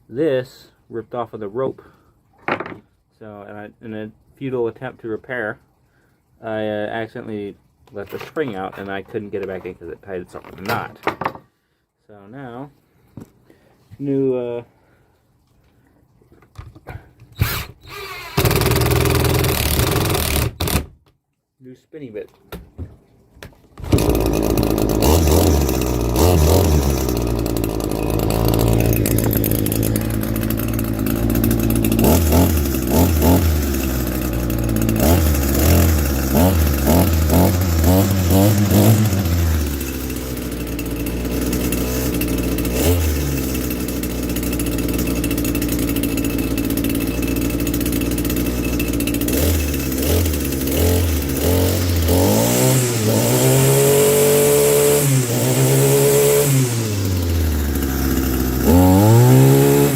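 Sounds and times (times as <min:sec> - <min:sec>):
trimmer line head spinning: 0:17.4 - 0:20.7, 0:23.8 - 0:59.9
string trimmer engine revving: 0:17.4 - 0:20.9, 0:23.8 - 0:59.9.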